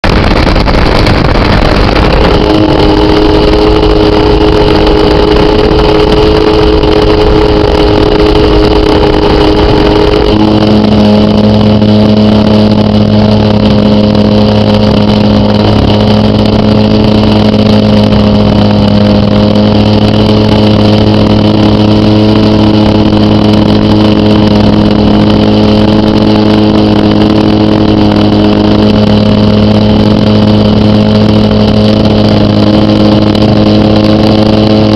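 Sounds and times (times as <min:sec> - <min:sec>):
model airplane engine running: 0:00.0 - 0:34.9.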